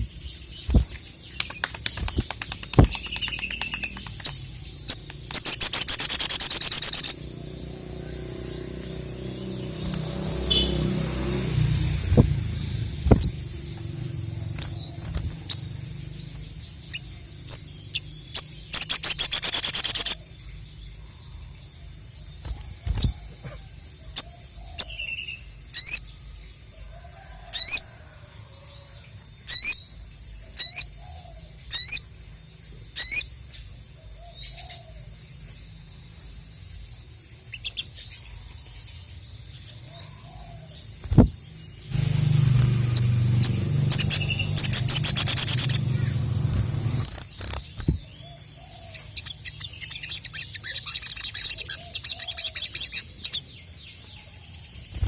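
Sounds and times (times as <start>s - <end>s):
bird high rising chirps: 0.0s - 55.0s
rapid chattering: 41.9s - 48.0s.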